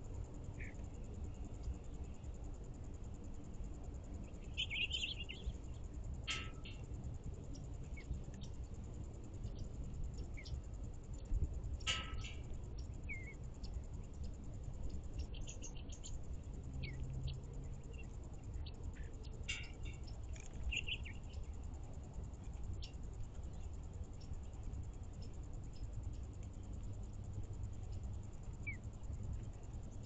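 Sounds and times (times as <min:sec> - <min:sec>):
songbirds chirping: 0:00.0 - 0:30.0
steady low rumble: 0:00.0 - 0:30.0.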